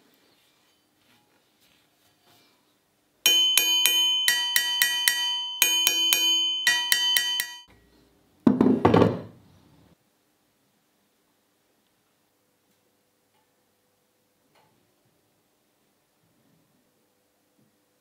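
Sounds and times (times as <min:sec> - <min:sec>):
struck bell-like notes: 0:03.3 - 0:07.7.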